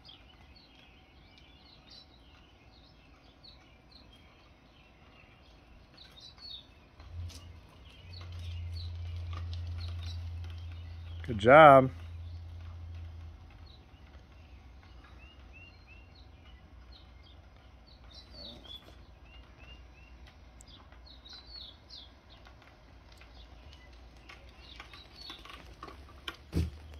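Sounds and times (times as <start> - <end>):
songbirds chirping: 0.0 - 26.9
low steady rumble: 6.7 - 26.9.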